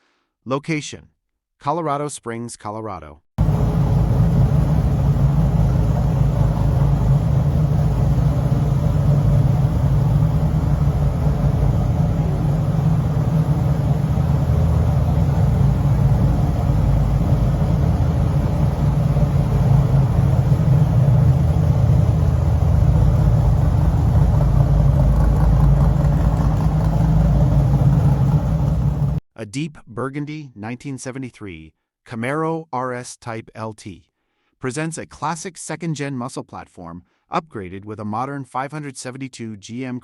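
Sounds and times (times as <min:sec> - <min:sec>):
engine rumbling steadily: 0:03.4 - 0:29.2.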